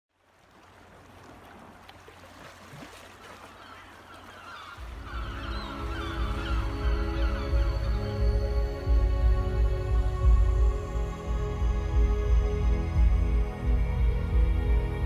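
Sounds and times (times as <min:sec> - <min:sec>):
birds calling: 0:02.9 - 0:09.2
music with low sustained tones: 0:04.8 - 0:15.0.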